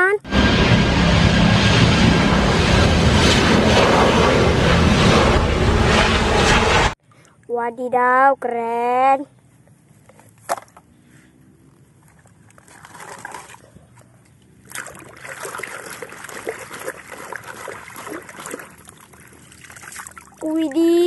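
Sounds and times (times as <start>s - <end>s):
water splashing in a tub: 12.1s - 21.0s.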